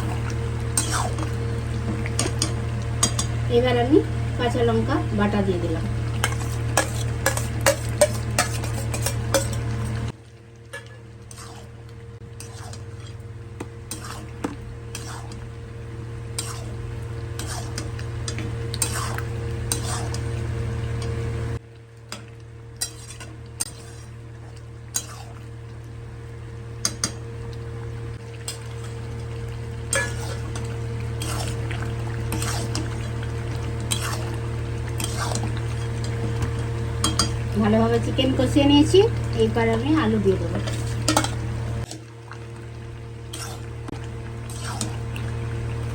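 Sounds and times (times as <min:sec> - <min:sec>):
food frying: 0:00.0 - 0:45.9
steady low hum: 0:00.0 - 0:45.9
spatula scraping a pan: 0:00.8 - 0:01.3, 0:06.2 - 0:09.7, 0:10.7 - 0:11.7, 0:12.3 - 0:13.2, 0:13.9 - 0:15.4, 0:16.3 - 0:16.8, 0:17.4 - 0:20.3, 0:22.8 - 0:24.2, 0:29.9 - 0:33.0, 0:33.8 - 0:34.4, 0:35.0 - 0:36.2, 0:43.3 - 0:43.7, 0:44.4 - 0:45.0.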